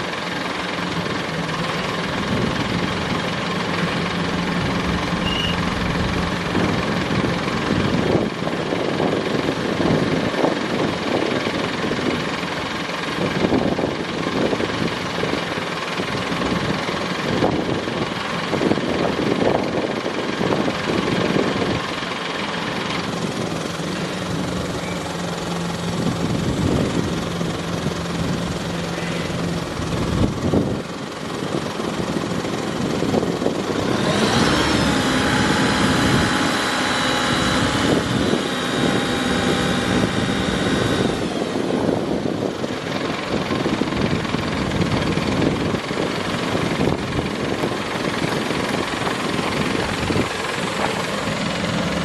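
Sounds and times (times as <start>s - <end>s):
diesel truck engine running: 0.0s - 52.0s
steady hum: 2.3s - 8.3s
high-pitched whine: 3.9s - 8.2s.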